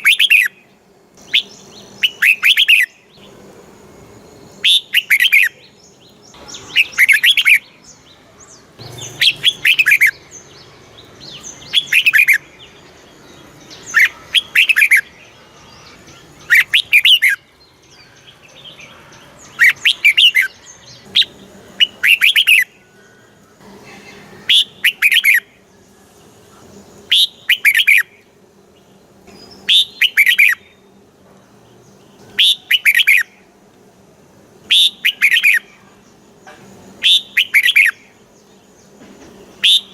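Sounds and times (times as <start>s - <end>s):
bird singing whistled notes: 0.0s - 3.2s, 4.5s - 18.8s, 19.4s - 26.1s, 27.1s - 28.3s, 29.3s - 30.9s, 32.2s - 33.4s, 34.6s - 35.8s, 37.0s - 38.6s, 39.5s - 39.9s.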